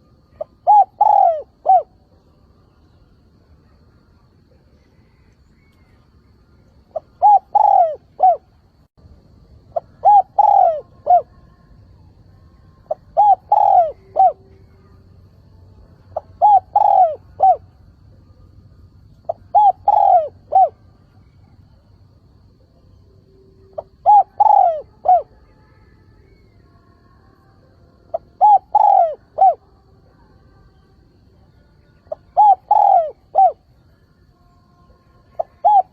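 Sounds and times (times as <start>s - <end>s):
dove cooing: 0.0s - 2.0s, 6.9s - 8.5s, 9.7s - 11.7s, 12.8s - 15.0s, 16.0s - 17.8s, 19.2s - 21.8s, 23.6s - 25.5s, 28.1s - 29.7s, 32.0s - 33.7s, 35.2s - 35.9s.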